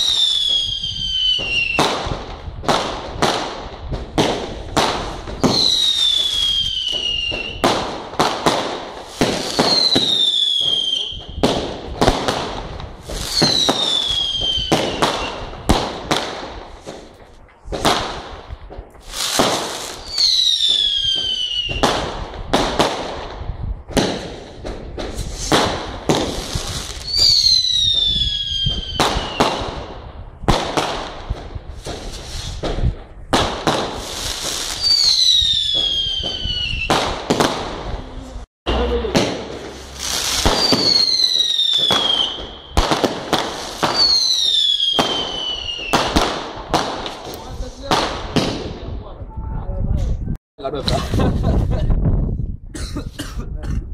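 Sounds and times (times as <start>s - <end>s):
fireworks whistles falling in pitch: 0.0s - 2.2s, 5.3s - 7.8s, 9.0s - 15.9s, 19.0s - 22.8s, 25.1s - 29.9s, 33.6s - 37.6s, 38.7s - 46.4s
fireworks bangs and crackles: 0.0s - 52.7s.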